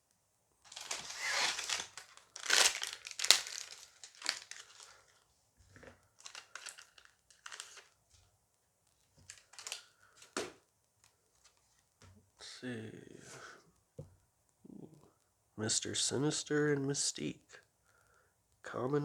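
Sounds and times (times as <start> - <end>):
wrapper tearing and crumpling: 0.7 - 5.2, 6.2 - 8.0, 9.3 - 9.9
sharp crack: 1.1 - 4.4.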